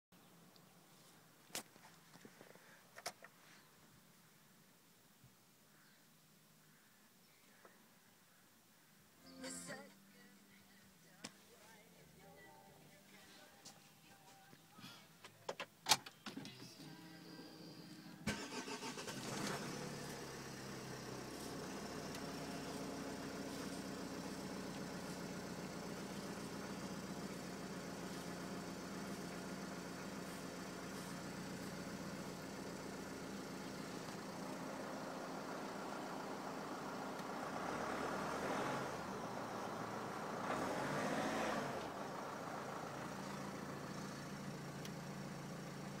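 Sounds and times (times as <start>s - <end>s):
diesel engine idling: 17.1s - 46.0s.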